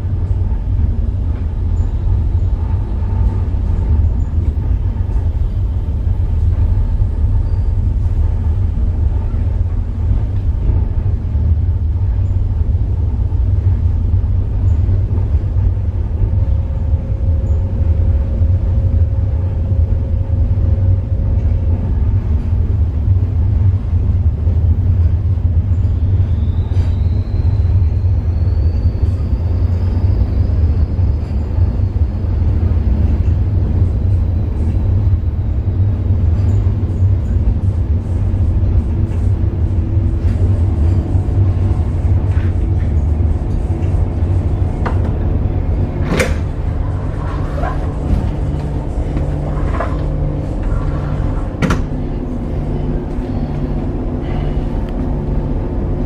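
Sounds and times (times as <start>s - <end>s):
faint high whine: 0.0s - 56.0s
train rumbling on rails: 0.0s - 56.0s.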